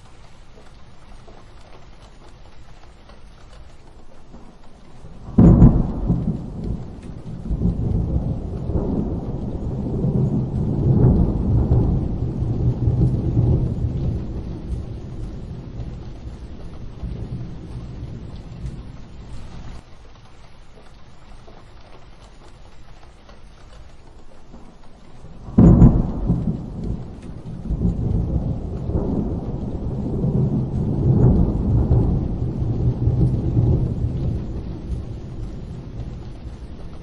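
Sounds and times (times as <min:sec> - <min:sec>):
rolling rumble of thunder: 0:00.0 - 0:37.0
steady rain: 0:00.0 - 0:37.0
sharp thunderclap: 0:05.0 - 0:19.8, 0:25.3 - 0:37.0.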